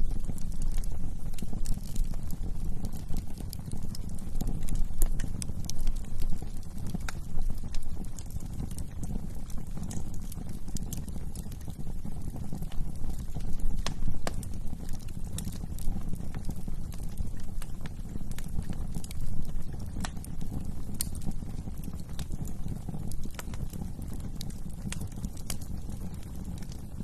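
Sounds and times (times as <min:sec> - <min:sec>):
fire crackling and popping: 0:00.0 - 0:27.0
low rush of flames: 0:00.0 - 0:27.0.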